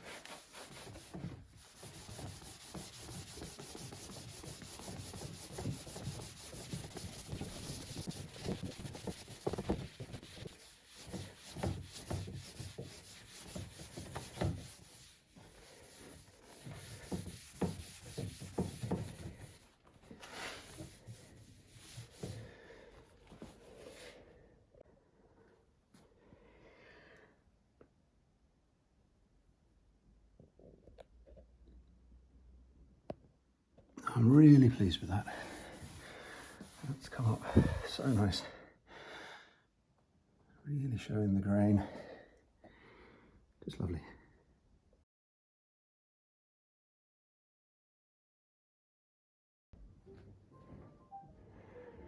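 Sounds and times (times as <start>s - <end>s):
cloth rubbing wooden surface: 0.0s - 22.5s, 34.6s - 38.4s.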